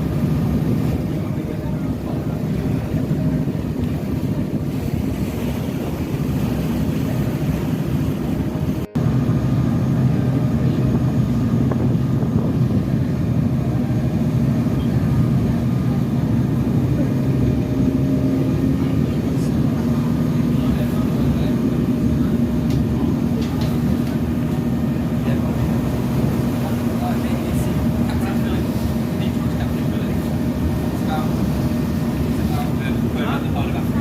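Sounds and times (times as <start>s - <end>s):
boat engine drone: 0.0s - 34.0s.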